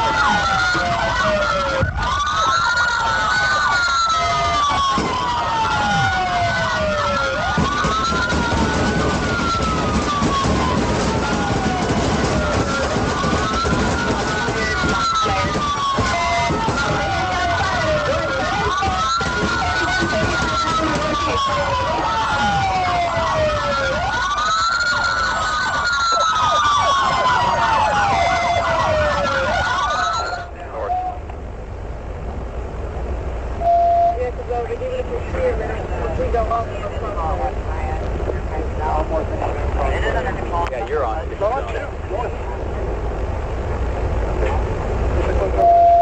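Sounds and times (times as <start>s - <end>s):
engine and road noise: 0.0s - 46.0s
police sirens wailing: 0.0s - 46.0s.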